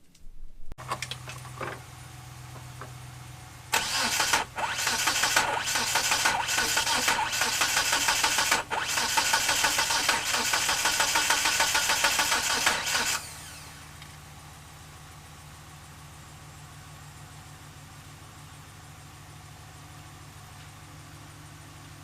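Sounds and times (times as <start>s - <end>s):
car engine cranking: 3.7s - 13.8s.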